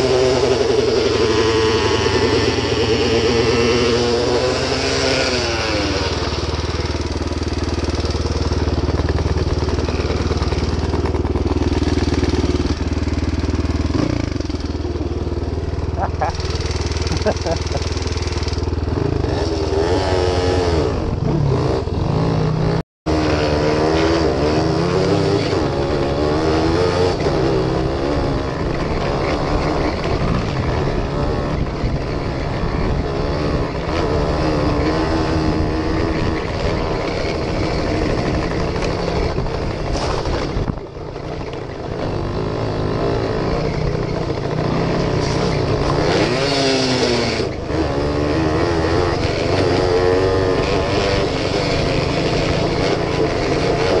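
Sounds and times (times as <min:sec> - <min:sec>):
two-stroke motorcycle engine revving: 0:00.0 - 0:54.0.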